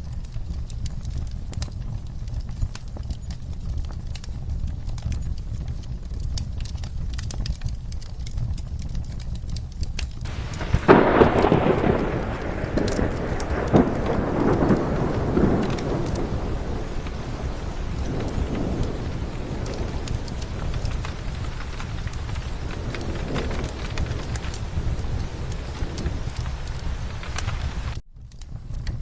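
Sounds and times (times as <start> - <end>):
low constant rumble: 0.0 - 29.0
sharp crackles: 0.0 - 29.0
steady rain: 0.0 - 29.0
thunderclap rolling: 10.2 - 29.0.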